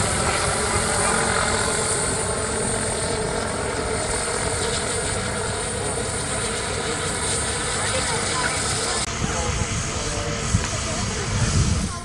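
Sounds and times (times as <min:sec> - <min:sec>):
helicopter rotor noise: 0:00.0 - 0:12.0
high turbine whine: 0:00.0 - 0:12.0.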